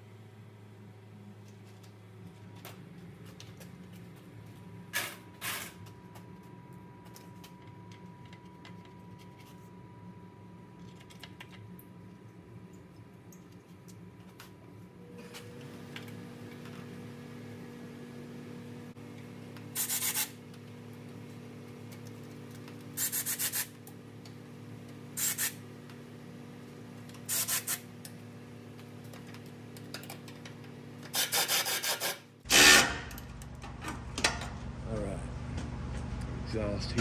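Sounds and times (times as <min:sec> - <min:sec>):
steady low hum: 0:00.0 - 0:31.1
power tool rasping bursts: 0:31.1 - 0:33.1.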